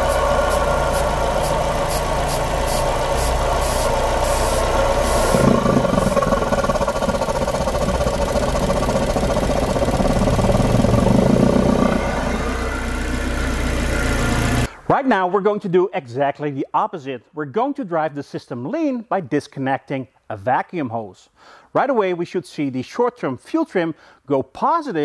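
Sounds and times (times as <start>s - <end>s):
spray can hissing bursts: 0.0s - 6.3s
car engine idling: 0.0s - 14.7s
low rumble: 0.0s - 14.8s.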